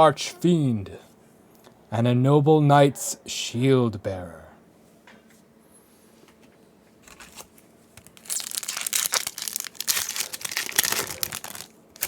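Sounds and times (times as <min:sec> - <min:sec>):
foil wrapper crinkling: 0:07.0 - 0:12.0.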